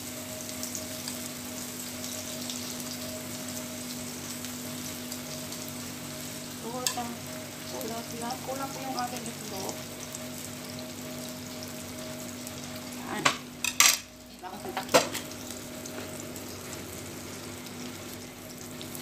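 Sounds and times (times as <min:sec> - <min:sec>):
omelette sizzling in a pan: 0:00.0 - 0:19.0
utensils clacking: 0:13.2 - 0:14.1.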